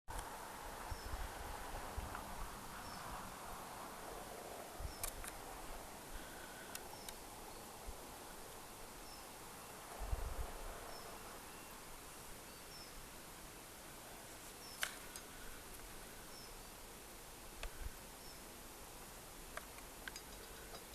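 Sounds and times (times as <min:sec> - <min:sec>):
sharp clicks: 0:05.0 - 0:05.4, 0:14.7 - 0:15.8.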